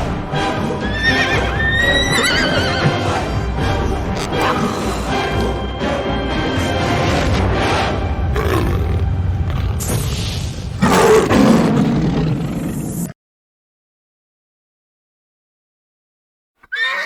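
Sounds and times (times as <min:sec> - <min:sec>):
animal roaring and crying: 0:00.8 - 0:03.2, 0:04.1 - 0:05.7, 0:08.3 - 0:10.0, 0:10.7 - 0:13.1, 0:16.6 - 0:17.0.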